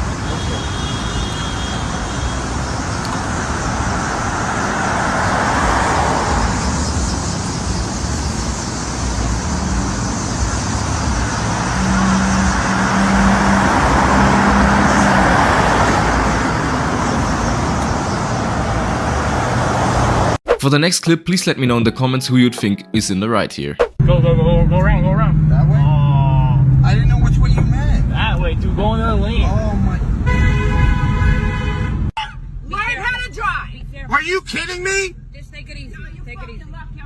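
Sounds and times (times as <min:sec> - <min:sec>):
road traffic passing: 0:00.0 - 0:20.4.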